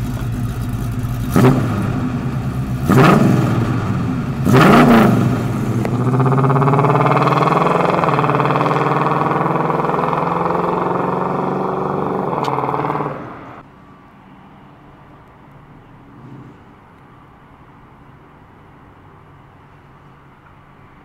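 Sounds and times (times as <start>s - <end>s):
car engine revving and pulling away: 0.0s - 13.6s.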